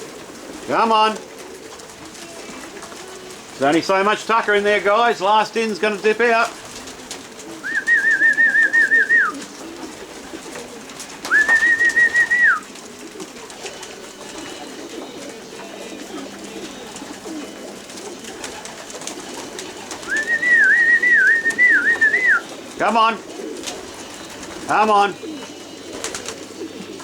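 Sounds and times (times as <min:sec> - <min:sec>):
pigeons cooing: 0:00.0 - 0:27.0
trilled whistle: 0:07.6 - 0:09.4, 0:11.2 - 0:12.6, 0:20.0 - 0:22.4.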